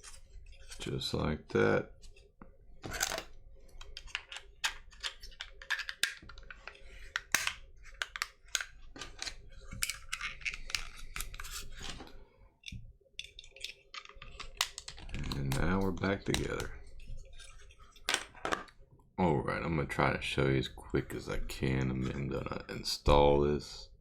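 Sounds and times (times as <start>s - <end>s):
plastic parts clicking and rustling: 2.8s - 18.8s.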